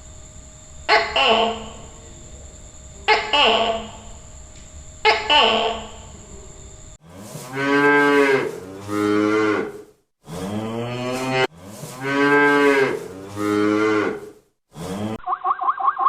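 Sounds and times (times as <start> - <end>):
cow mooing: 7.0 - 15.2.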